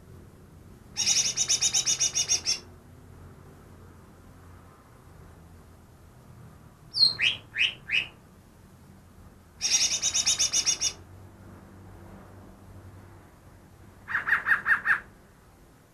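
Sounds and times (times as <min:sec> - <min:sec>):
bird singing: 0:01.0 - 0:02.7, 0:06.9 - 0:08.2, 0:09.6 - 0:11.0
rising bird whistles: 0:06.9 - 0:08.2.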